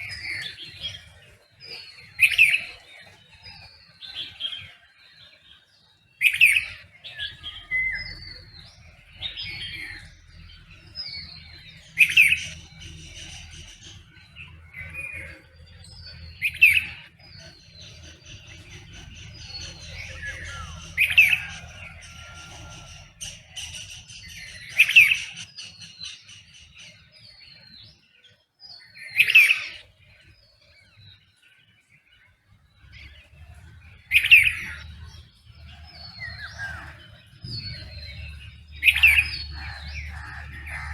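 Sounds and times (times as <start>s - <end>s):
soft bird chirps and whistles: 0.0s - 31.4s
songbirds calling: 0.0s - 40.9s.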